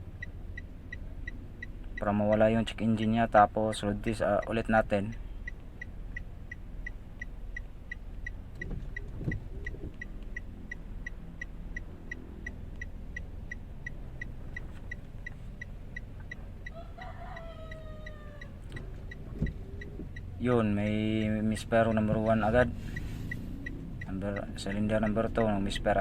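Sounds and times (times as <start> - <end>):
car engine idling: 0.0 - 26.0
sharp engine tick: 0.0 - 26.0
rooster crowing: 16.6 - 18.8.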